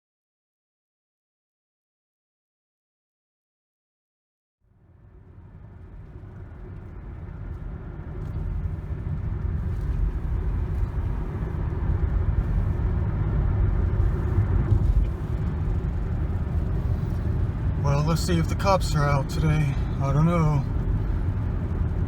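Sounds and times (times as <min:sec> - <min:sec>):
car engine and road noise: 0:04.7 - 0:22.0.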